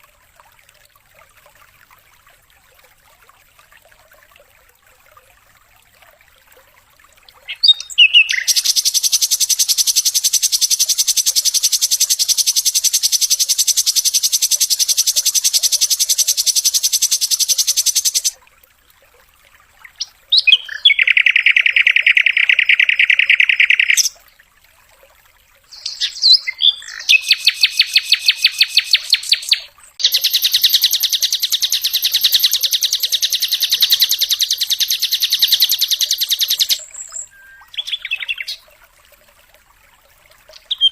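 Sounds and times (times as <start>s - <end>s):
bird buzzy rattling trills: 8.3s - 18.4s, 26.9s - 36.8s.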